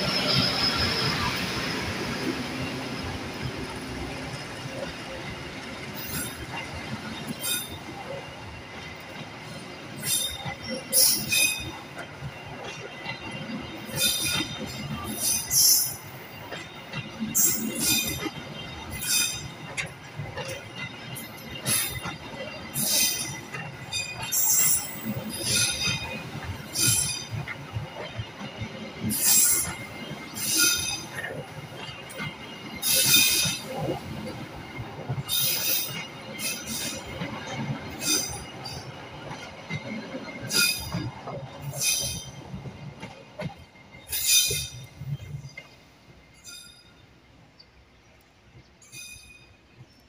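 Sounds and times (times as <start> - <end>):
wheel flanges screeching: 0.0 - 8.6, 20.6 - 34.4, 35.1 - 42.5
train wheels rumbling on rails: 0.0 - 50.0.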